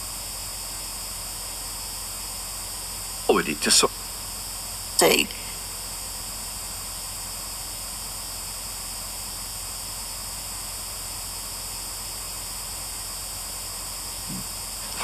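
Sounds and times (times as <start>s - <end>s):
faint low hum: 0.7s - 8.0s, 12.2s - 15.0s
static hiss: 2.9s - 6.5s, 13.8s - 15.0s.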